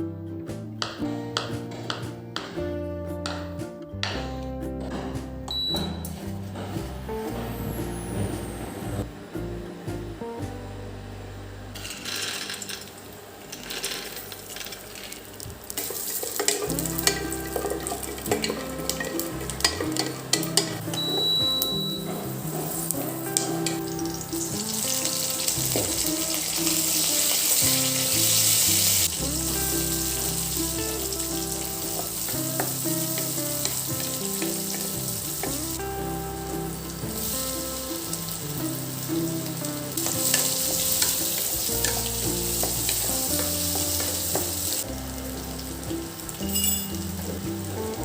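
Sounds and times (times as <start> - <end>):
soft background music: 0.0 - 12.7, 15.4 - 48.0
food sizzling in a hot pan: 15.7 - 48.0.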